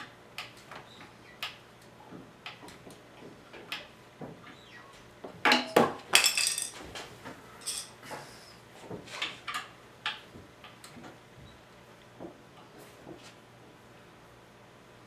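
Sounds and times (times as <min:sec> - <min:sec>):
hard objects clinking and clattering: 0:05.5 - 0:08.0.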